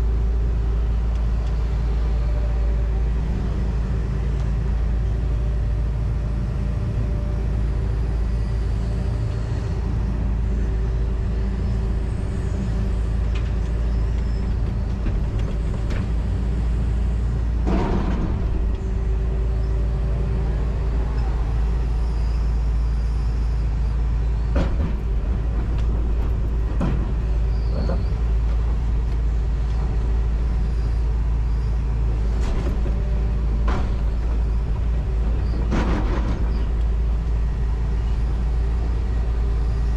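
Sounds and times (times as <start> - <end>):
diesel engine running: 0.0 - 39.9
machine knocks and clunks: 17.6 - 18.8, 24.5 - 28.6, 32.4 - 36.8.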